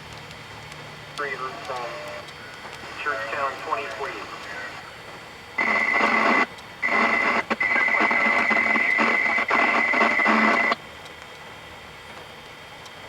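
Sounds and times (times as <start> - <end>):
faint radio hiss: 0.8 - 10.8
garbled radio transmission: 1.2 - 10.8.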